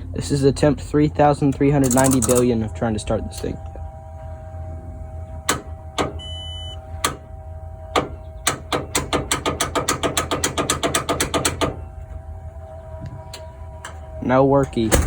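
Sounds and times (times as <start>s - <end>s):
starter solenoid clicking: 1.2s - 15.0s
short electronic beep: 6.2s - 6.8s.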